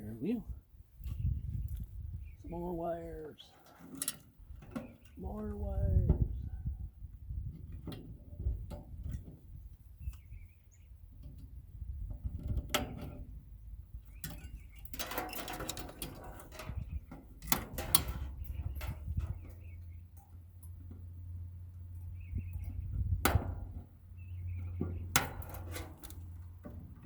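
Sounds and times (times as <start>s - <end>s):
wires scraping and rustling: 3.0s - 6.3s, 14.0s - 21.2s, 21.8s - 27.0s
wires and metal parts clicking: 14.0s - 21.1s, 24.6s - 26.7s.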